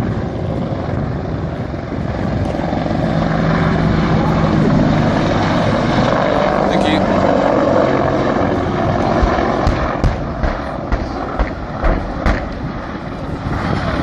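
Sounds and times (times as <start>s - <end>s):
aircraft engine running: 0.0s - 14.0s.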